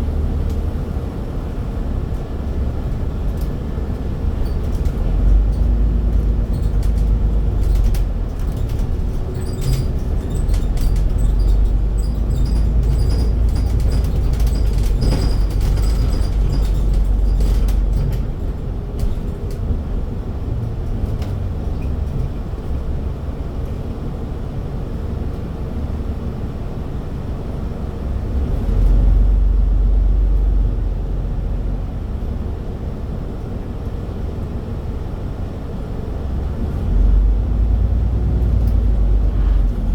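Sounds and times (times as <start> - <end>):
bus engine rumbling: 0.0 - 39.9
light rattles: 4.3 - 22.8.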